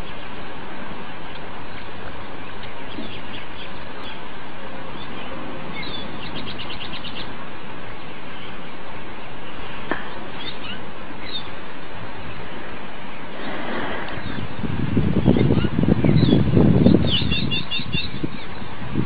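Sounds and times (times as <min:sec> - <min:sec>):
steady rushing noise: 0:00.0 - 0:19.0
small bird chirping: 0:04.9 - 0:07.4, 0:10.3 - 0:11.6.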